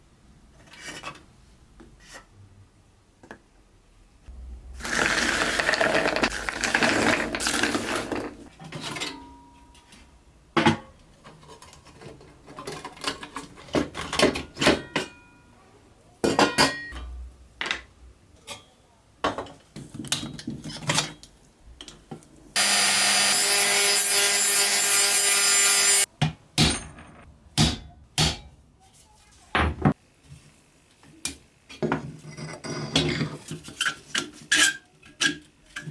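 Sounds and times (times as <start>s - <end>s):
loud rough metal scraping: 4.3s - 8.5s
power tool running: 22.6s - 26.1s.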